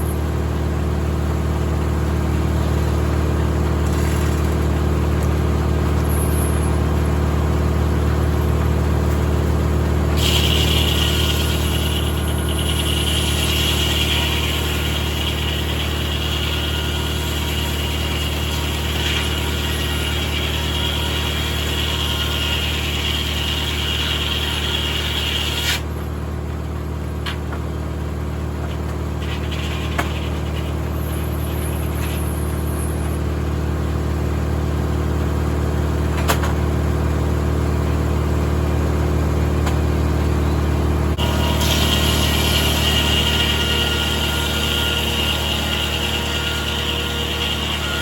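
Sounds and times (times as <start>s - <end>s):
tractor engine running: 0.0s - 13.5s, 25.8s - 41.6s
saw blade cutting hiss: 10.2s - 16.4s.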